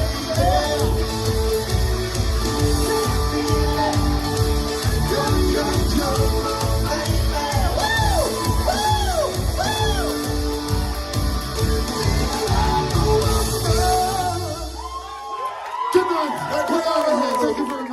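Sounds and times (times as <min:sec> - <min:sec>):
live rock and roll band: 0:00.0 - 0:15.2.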